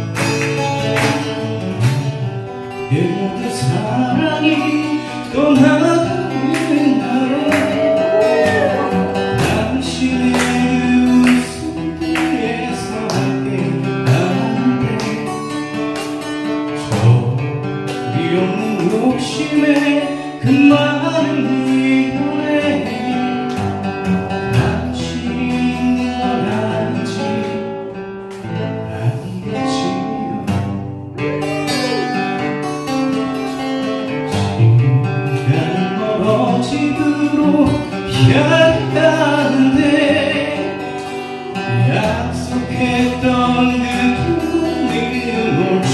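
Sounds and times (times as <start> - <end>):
acoustic guitars strumming: 0.0 - 45.9
person singing: 2.9 - 15.6, 18.0 - 23.4, 34.4 - 45.9.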